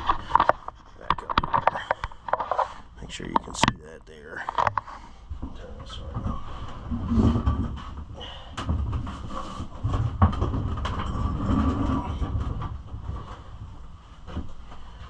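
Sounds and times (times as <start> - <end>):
clicks and knocks of handling: 0.0 - 4.9.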